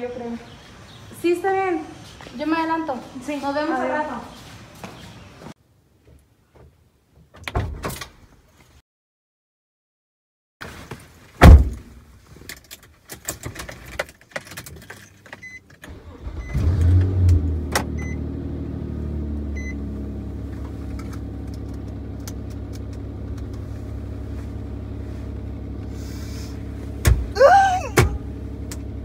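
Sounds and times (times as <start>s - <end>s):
car engine starting and idling: 13.6s - 29.0s.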